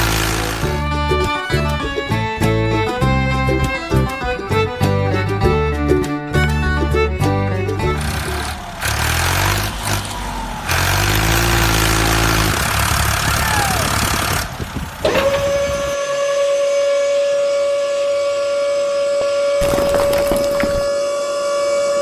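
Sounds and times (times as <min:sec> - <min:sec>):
truck engine rumbling: 0:00.0 - 0:16.4, 0:19.6 - 0:21.6
siren-like tone: 0:15.0 - 0:22.0.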